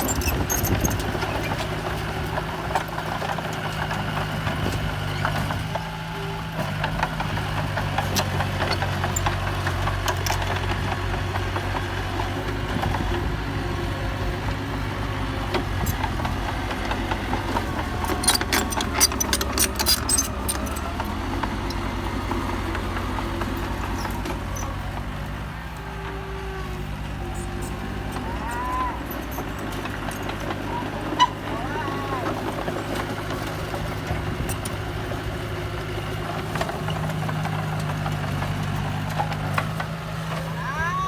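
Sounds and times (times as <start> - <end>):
bulldozer engine running: 0.0 - 41.0
metallic clanks and rattles: 15.4 - 24.7.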